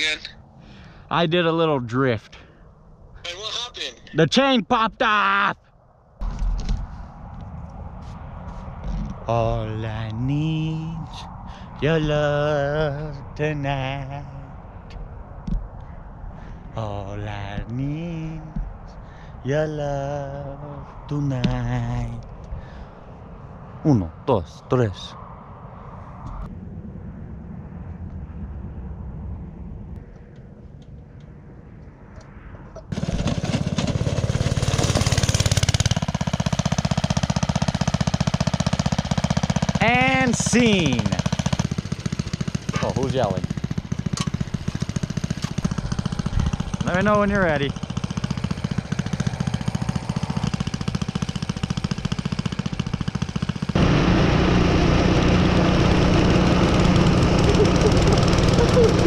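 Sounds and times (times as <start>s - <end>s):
small gasoline engine running: 32.9s - 59.0s.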